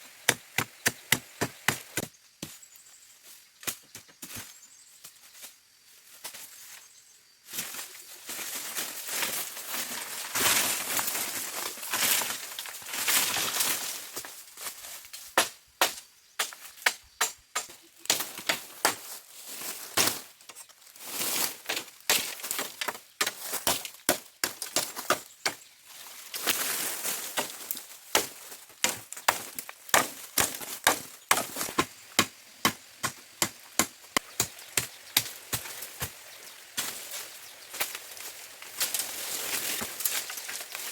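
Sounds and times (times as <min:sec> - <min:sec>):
bamboo chopping strikes: 0:00.3 - 0:02.6, 0:15.4 - 0:19.1, 0:21.7 - 0:25.6, 0:27.4 - 0:36.2
rustling leaves: 0:02.7 - 0:40.9.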